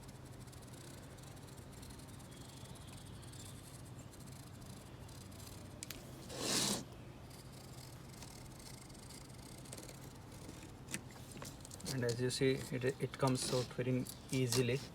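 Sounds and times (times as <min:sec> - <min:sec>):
faint steady hum: 0:00.0 - 0:14.9.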